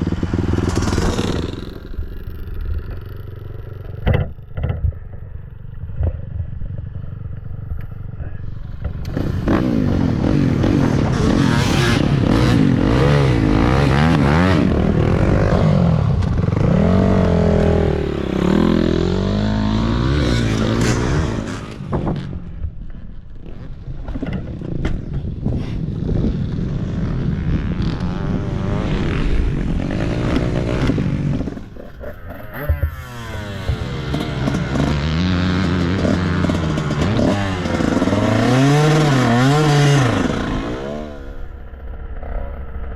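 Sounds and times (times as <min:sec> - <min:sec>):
dirt bike engine revving: 0:00.0 - 0:03.8, 0:09.0 - 0:22.4, 0:26.1 - 0:42.8.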